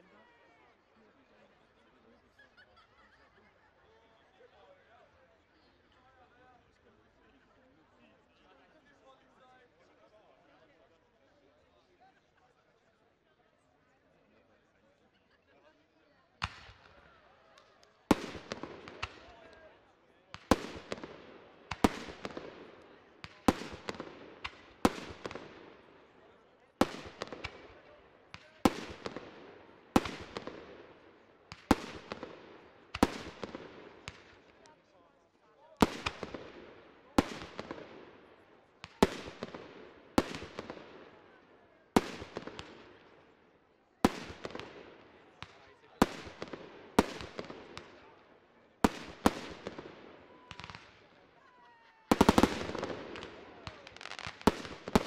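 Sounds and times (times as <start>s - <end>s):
smaller firework cracks: 16.4s - 19.7s, 20.3s - 26.2s, 26.8s - 34.8s, 35.8s - 43.4s, 44.0s - 55.0s
fireworks bangs with echo: 16.4s - 34.7s, 35.8s - 43.4s, 44.0s - 51.2s, 52.1s - 55.0s.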